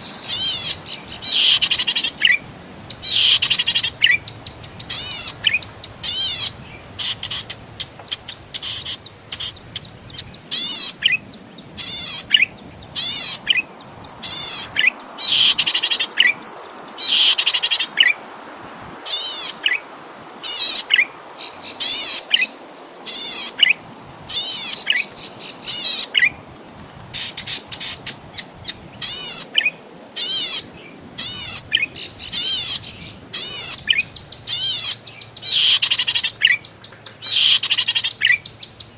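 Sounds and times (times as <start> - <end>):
bird singing rapid high chirps: 0.0 - 18.0, 30.2 - 38.9.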